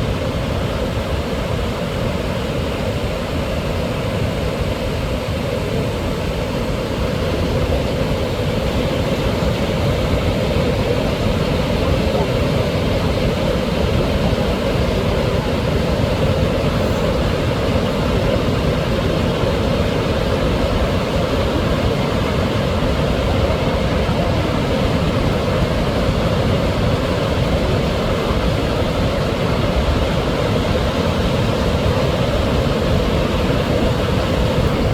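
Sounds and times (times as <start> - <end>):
waterfall rushing: 7.0 - 34.9.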